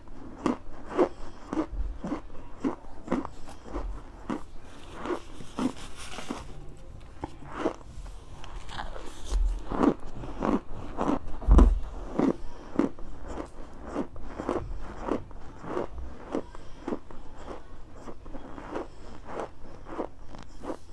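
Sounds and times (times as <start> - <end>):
chewing crunchy food: 0.0 - 20.9
dull low thump: 11.3 - 12.1.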